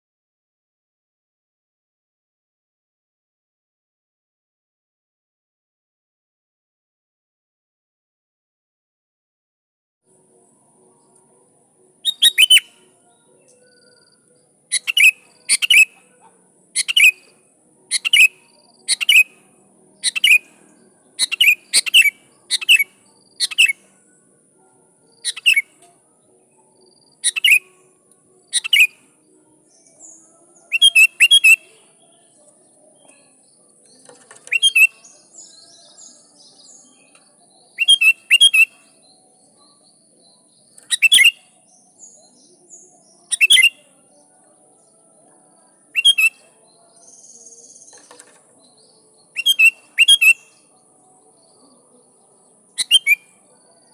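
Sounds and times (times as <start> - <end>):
bulbul chirping: 12.0 - 12.7, 14.7 - 16.0, 16.8 - 17.2, 17.9 - 19.4, 20.0 - 20.5, 21.2 - 23.8, 25.2 - 25.6, 27.2 - 27.7, 28.5 - 28.9, 30.7 - 31.7, 34.4 - 35.1, 40.9 - 41.4, 43.3 - 43.7.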